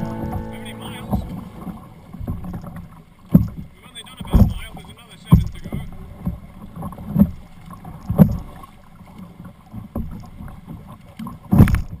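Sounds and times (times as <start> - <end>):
dull paddle thumps: 0.0 - 2.7
low watery background: 0.0 - 12.0.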